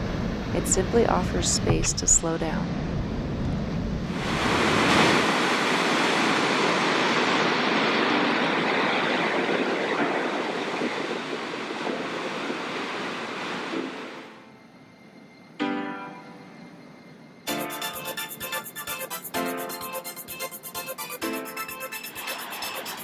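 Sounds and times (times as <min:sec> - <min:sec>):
waterfall rushing: 0:04.2 - 0:14.1.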